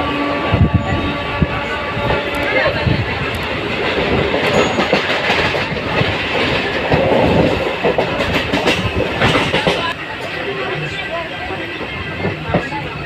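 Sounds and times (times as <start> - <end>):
train wheels clattering over rails: 2.0 - 10.4.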